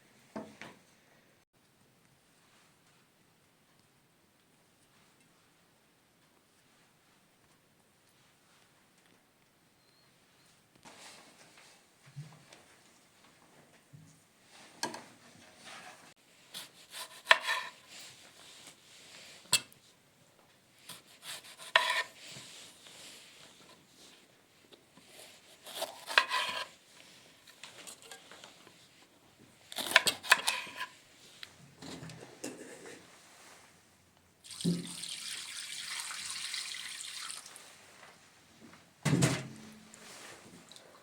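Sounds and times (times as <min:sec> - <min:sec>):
knife chopping on wooden board: 0:21.2 - 0:22.1.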